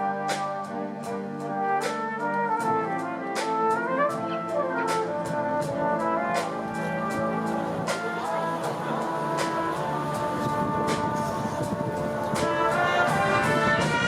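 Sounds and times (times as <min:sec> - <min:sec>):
brass band playing chords: 0:00.0 - 0:14.0.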